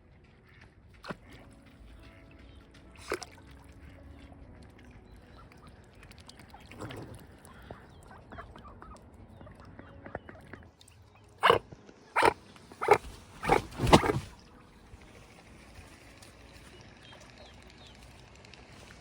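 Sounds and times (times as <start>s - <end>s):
harsh animal calls: 11.4s - 11.6s, 12.2s - 14.3s.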